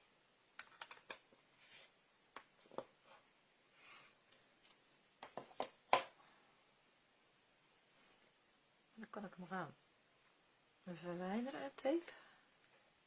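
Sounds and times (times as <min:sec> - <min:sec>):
soft rustles: 0:01.4 - 0:02.0, 0:07.4 - 0:08.4.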